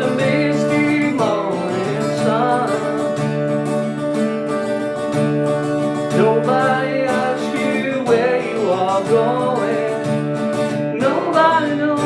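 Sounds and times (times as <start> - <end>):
man singing: 0.0 - 4.0, 5.9 - 12.0
acoustic guitar strumming: 0.0 - 12.0.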